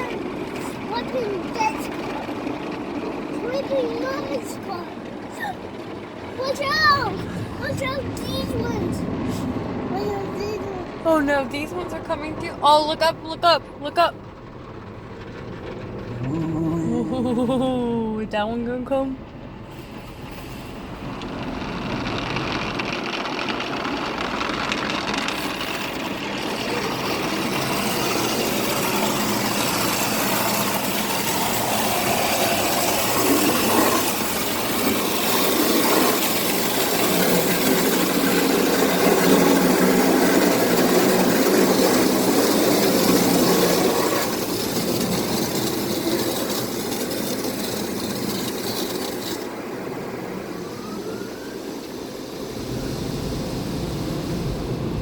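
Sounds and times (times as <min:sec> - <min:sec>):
water spraying: 0:21.4 - 0:49.8, 0:50.6 - 0:55.0
rotating brushes scrubbing: 0:22.2 - 0:49.8.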